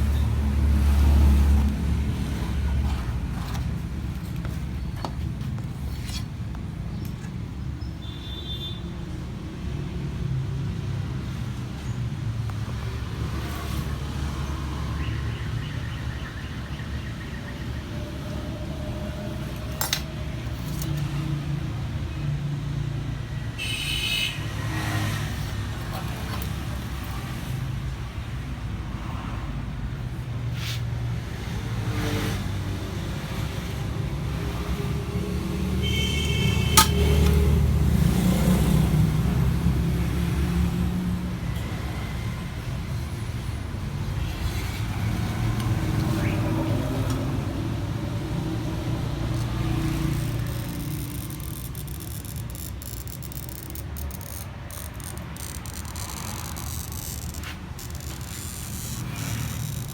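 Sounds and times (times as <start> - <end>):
low rumble of motor vehicles: 0.0 - 59.9
sharp clicks: 49.4 - 59.9.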